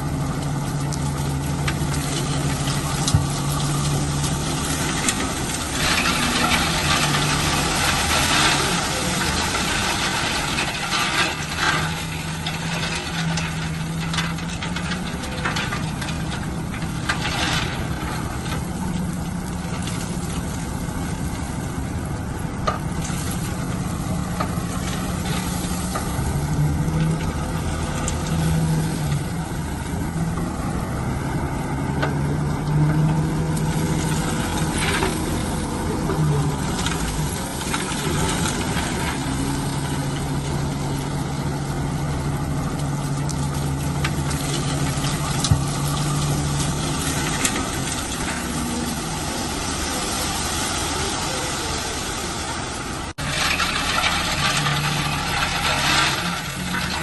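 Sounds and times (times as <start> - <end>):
heavy diesel engine running: 0.0 - 57.0
loud noisy hiss and rattle: 44.2 - 57.0.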